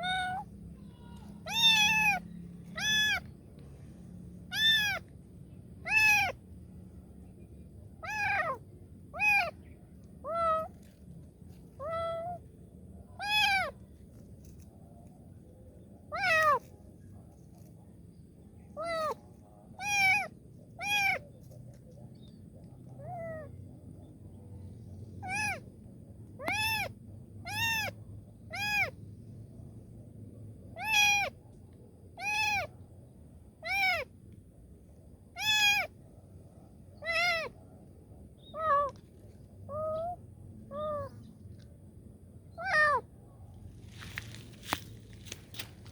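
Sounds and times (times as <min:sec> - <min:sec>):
kitten meowing: 0:00.0 - 0:03.3, 0:04.5 - 0:05.1, 0:05.8 - 0:06.4, 0:08.0 - 0:08.6, 0:09.2 - 0:09.6, 0:11.8 - 0:12.4, 0:13.2 - 0:13.7, 0:16.1 - 0:16.6, 0:18.8 - 0:19.2, 0:19.8 - 0:21.2, 0:25.2 - 0:25.6, 0:26.4 - 0:26.9, 0:27.5 - 0:29.0, 0:30.8 - 0:31.3, 0:32.2 - 0:32.7, 0:33.6 - 0:34.1, 0:35.4 - 0:35.9, 0:37.0 - 0:37.6, 0:38.4 - 0:39.0, 0:39.7 - 0:41.2, 0:42.6 - 0:43.0.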